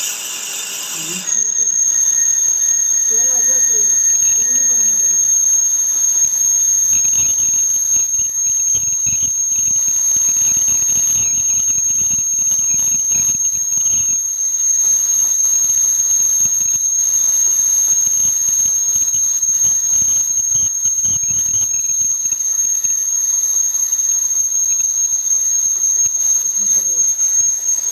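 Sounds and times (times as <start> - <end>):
fluttering squeal of cutting: 0.0 - 3.8
metal lathe whining: 0.0 - 4.3.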